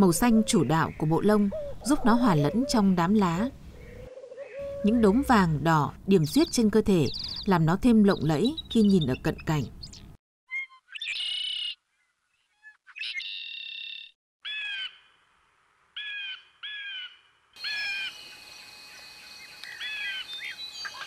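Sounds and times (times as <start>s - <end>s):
forest background: 0.0s - 21.0s
bird calls and chirps: 6.2s - 15.1s, 16.0s - 21.0s.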